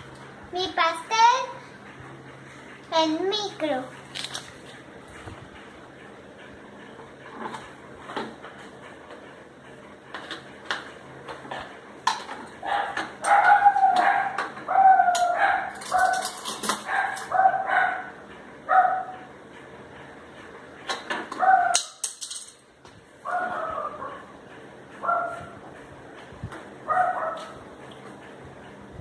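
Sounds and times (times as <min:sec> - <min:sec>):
dog barking: 0:12.6 - 0:16.2, 0:16.8 - 0:19.2, 0:21.4 - 0:21.9, 0:23.3 - 0:24.2, 0:25.0 - 0:25.6, 0:26.9 - 0:27.6.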